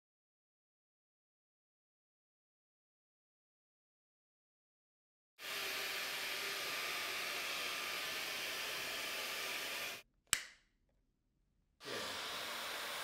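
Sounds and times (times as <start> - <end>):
cordless vacuum motor running: 5.4 - 10.0, 11.8 - 13.0.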